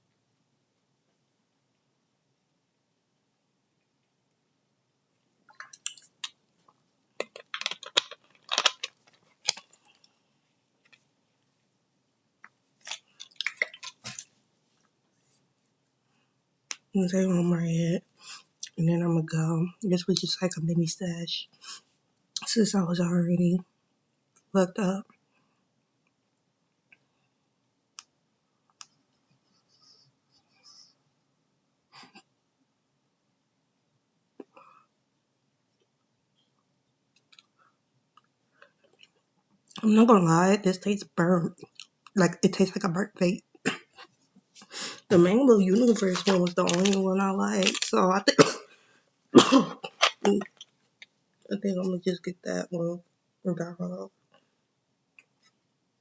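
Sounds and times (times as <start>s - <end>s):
small objects clicking and rustling: 5.5s - 10.1s, 12.8s - 14.3s, 44.6s - 48.0s.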